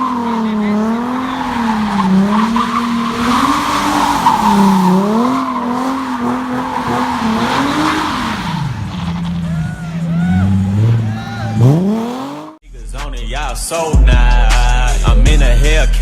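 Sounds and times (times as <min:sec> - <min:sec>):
car engine revving: 0:00.0 - 0:12.6
tires spinning and squealing: 0:00.0 - 0:12.6.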